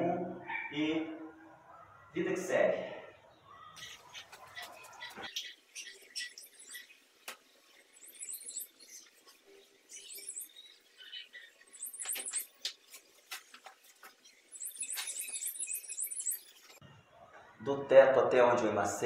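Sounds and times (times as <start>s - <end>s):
small bird chirping: 3.4s - 16.8s.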